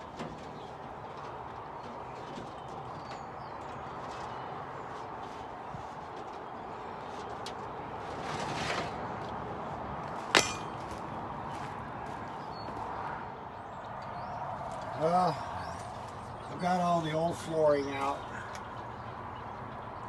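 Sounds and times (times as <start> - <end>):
sharp metallic clink: 10.4 - 10.9.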